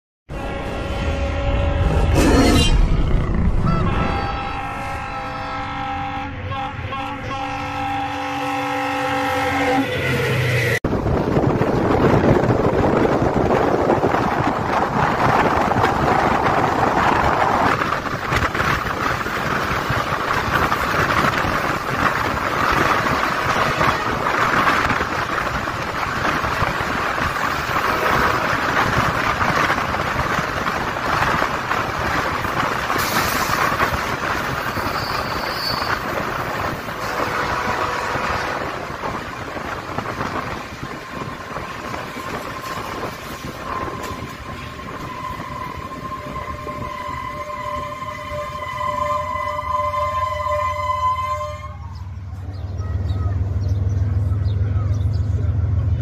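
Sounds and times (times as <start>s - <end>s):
train wheels rumbling on rail: 0.3s - 56.0s
rushing air: 24.4s - 47.2s.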